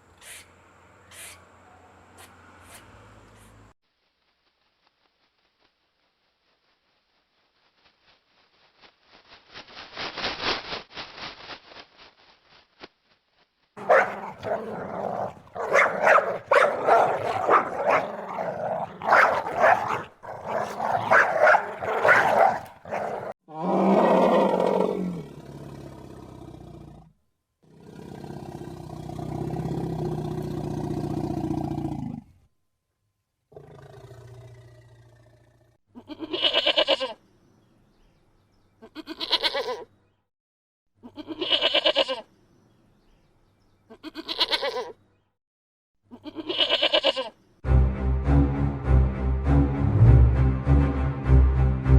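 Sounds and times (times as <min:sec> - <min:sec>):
animal rattling call: 0:13.8 - 0:23.3
animal growls and roars: 0:13.8 - 0:32.4, 0:33.5 - 0:35.8.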